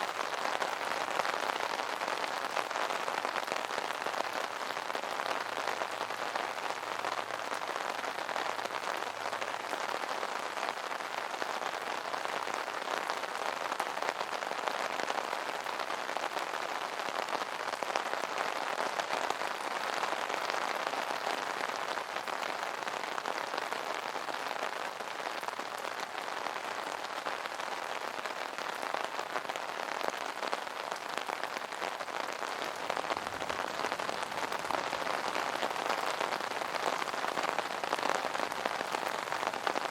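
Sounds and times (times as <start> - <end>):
rain pattering on umbrella: 0.0 - 39.9.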